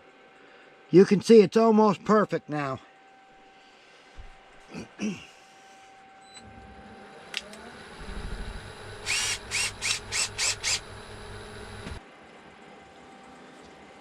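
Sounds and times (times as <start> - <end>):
electric motor running: 6.4 - 12.0
click: 7.3 - 7.6.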